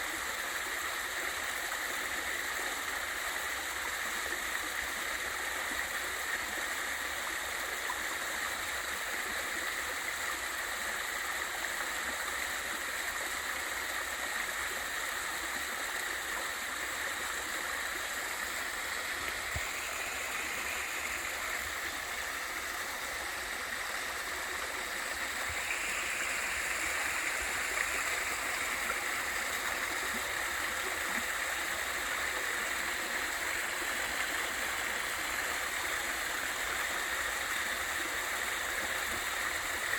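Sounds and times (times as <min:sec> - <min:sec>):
stream and waterfall rushing: 0:09.8 - 0:39.9.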